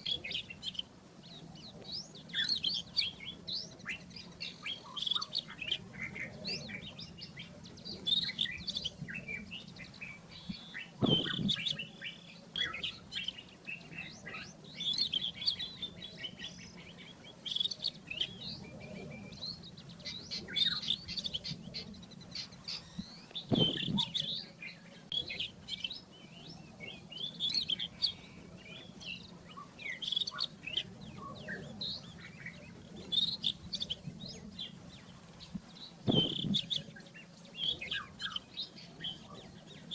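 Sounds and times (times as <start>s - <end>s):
scrub robin singing: 0.0s - 39.9s
dull low thumps: 11.0s - 11.6s, 23.5s - 24.1s, 36.1s - 36.7s.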